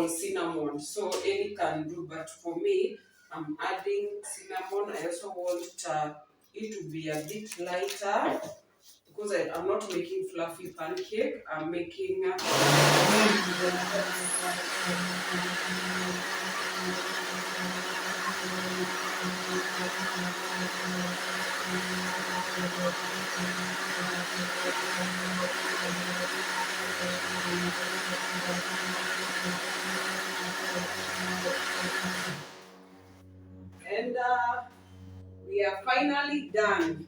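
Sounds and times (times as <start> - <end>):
blender running: 12.4 - 33.1.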